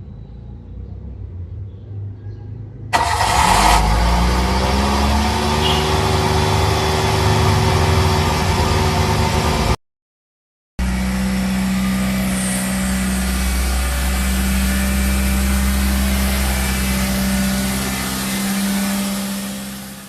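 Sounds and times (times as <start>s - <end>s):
car engine idling: 2.9s - 9.8s, 10.8s - 20.0s.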